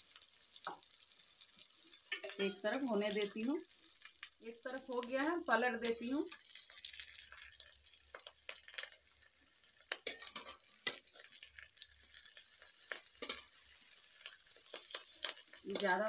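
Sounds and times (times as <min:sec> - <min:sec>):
patties sizzling in oil: 0:00.0 - 0:16.0.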